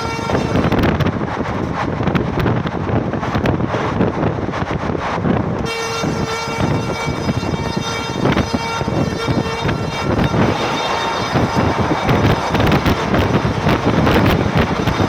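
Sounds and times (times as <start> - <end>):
train horn: 0.0 - 1.0, 5.6 - 15.0
continuous rumbling: 0.0 - 15.0.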